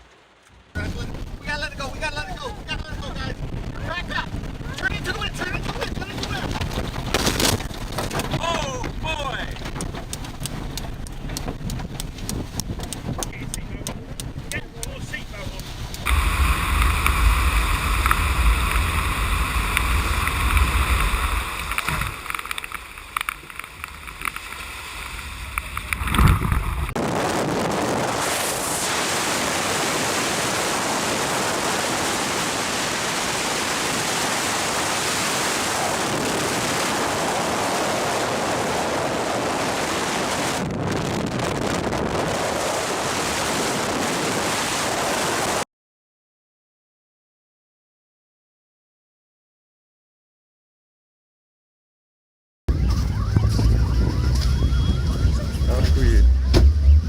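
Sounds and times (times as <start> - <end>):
wind rumble on microphone: 0.5 - 45.6, 52.7 - 57.0
rushing water: 14.2 - 40.7.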